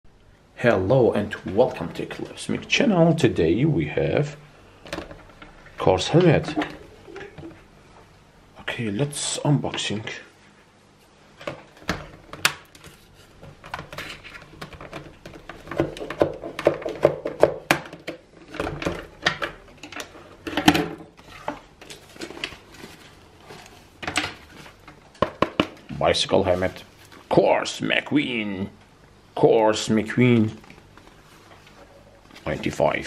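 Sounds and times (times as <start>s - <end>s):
packaging rustling and scraping: 11.6s - 17.0s, 18.4s - 25.2s, 26.2s - 27.3s, 30.4s - 33.0s.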